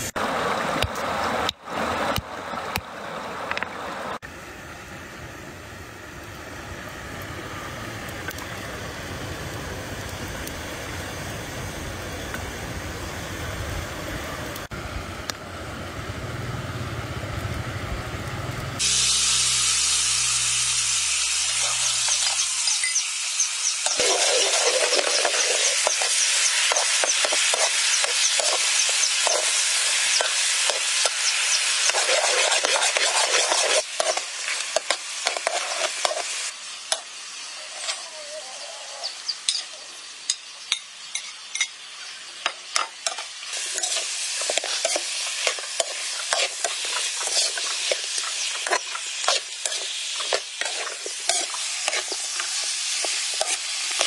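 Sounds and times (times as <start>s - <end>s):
ribs sizzling in a wok: 6.0s - 14.7s, 18.4s - 54.0s
utensil scraping a wok: 18.8s - 37.0s, 42.8s - 54.0s.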